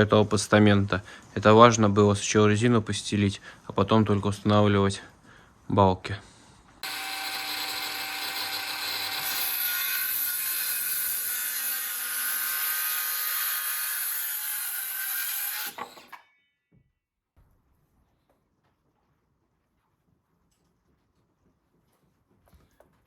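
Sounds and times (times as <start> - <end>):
power saw cutting wood: 6.8 - 16.2.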